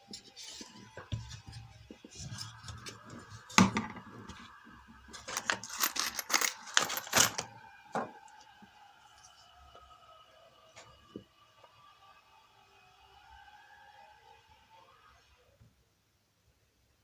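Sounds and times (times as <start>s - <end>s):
small metal objects clinking: 5.2s - 7.5s.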